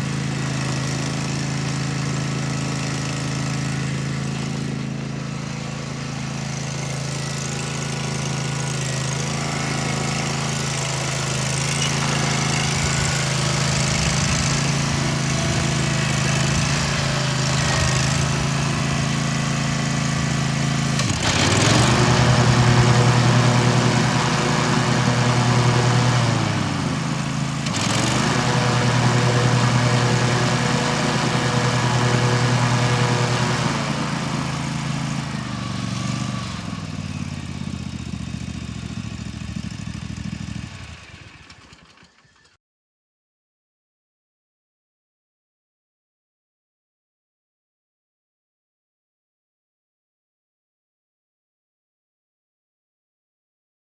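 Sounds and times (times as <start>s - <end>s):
lawn mower engine revving: 0.0s - 42.5s.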